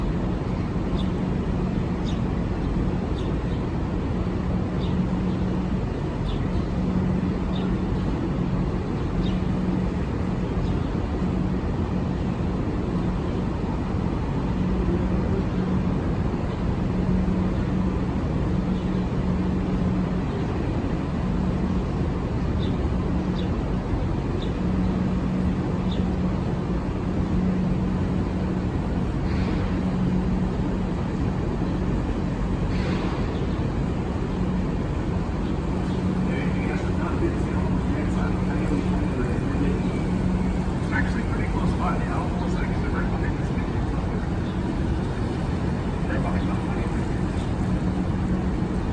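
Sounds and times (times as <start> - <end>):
steady low noise: 24.7 - 48.9
boat motor humming: 24.9 - 48.9.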